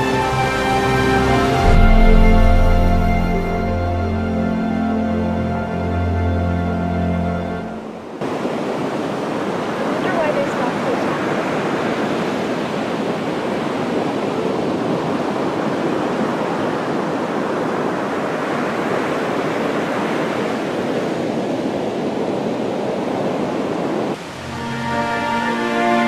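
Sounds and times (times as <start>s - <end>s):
rushing water roar: 0.0s - 26.0s.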